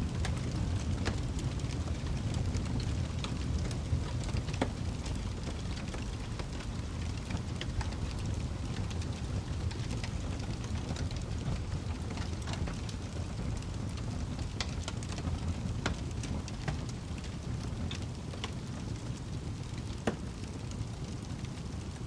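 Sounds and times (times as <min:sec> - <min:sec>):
fire crackling and popping: 0:00.0 - 0:22.0
fire rumbling: 0:00.0 - 0:22.0.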